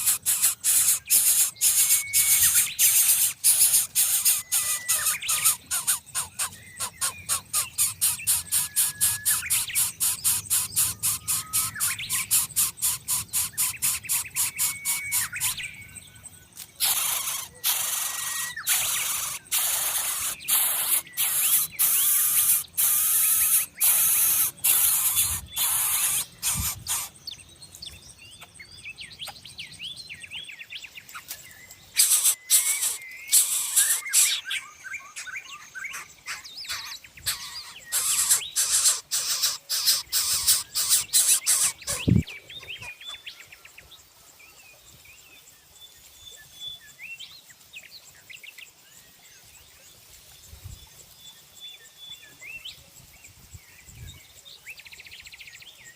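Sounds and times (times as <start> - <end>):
nestlings rasping hisses: 0.0 - 15.6, 16.8 - 27.2, 32.0 - 34.4, 36.7 - 42.1
small birds chirping: 0.0 - 55.9.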